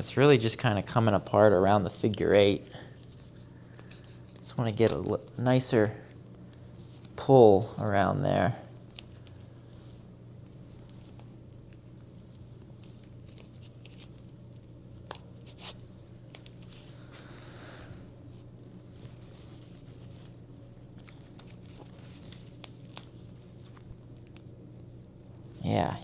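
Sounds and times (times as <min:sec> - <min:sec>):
steady low hum: 0:00.0 - 0:26.0
tape rustling and rubbing: 0:00.9 - 0:05.5, 0:08.8 - 0:17.6, 0:18.2 - 0:25.7.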